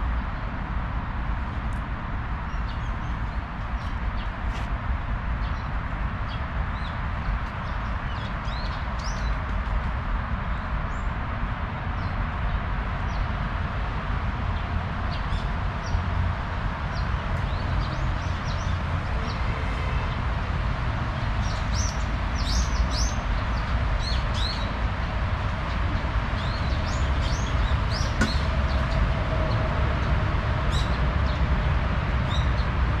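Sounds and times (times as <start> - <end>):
small birds chirping: 21.4 - 24.8, 25.5 - 29.0.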